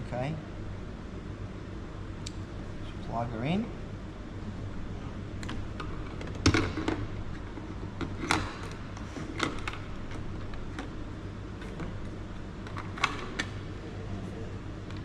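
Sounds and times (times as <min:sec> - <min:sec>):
low fan hum: 0:00.0 - 0:15.0.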